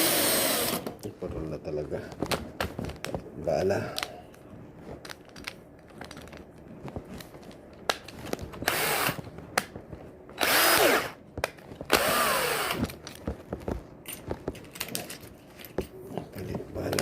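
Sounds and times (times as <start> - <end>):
electric drill bursts: 0.0 - 0.9, 8.6 - 9.2, 10.4 - 11.2, 11.9 - 12.8.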